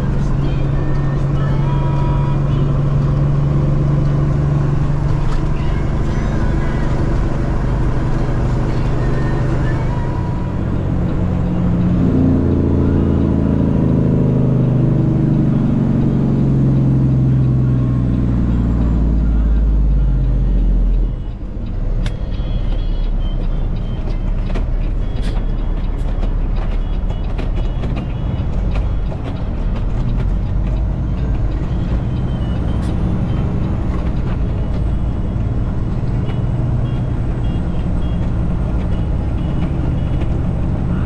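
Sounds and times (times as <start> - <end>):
road noise: 0.0 - 41.0
truck engine rumble: 0.0 - 41.0
sharp clicks: 20.8 - 37.1.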